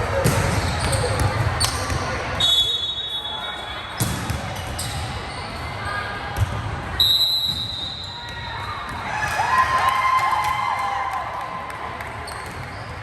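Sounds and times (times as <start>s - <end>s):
steady high whistle tone: 2.4s - 3.9s.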